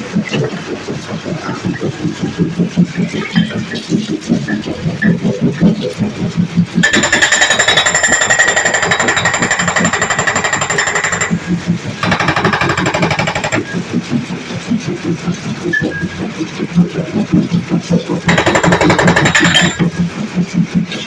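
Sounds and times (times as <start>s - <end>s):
hydraulic rock breaker hammering: 6.8s - 13.8s, 18.3s - 20.0s.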